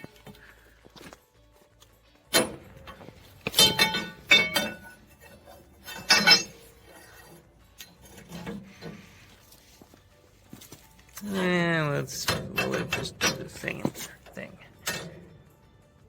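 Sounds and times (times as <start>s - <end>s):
sharp metallic knocks: 2.3s - 5.0s, 5.8s - 6.6s
metal pipe clanking: 2.3s - 9.3s, 10.5s - 15.6s.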